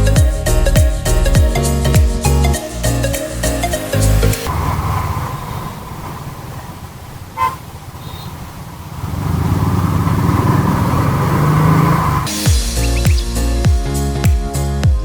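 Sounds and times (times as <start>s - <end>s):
motorcycle engine running: 7.4s - 13.9s.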